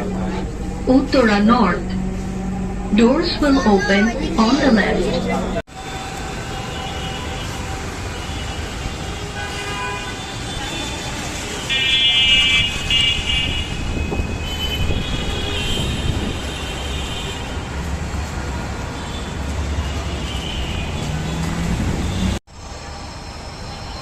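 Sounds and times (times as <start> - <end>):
high whining tone: 0.0 - 6.2
train low rumble: 0.0 - 9.3, 13.7 - 24.0.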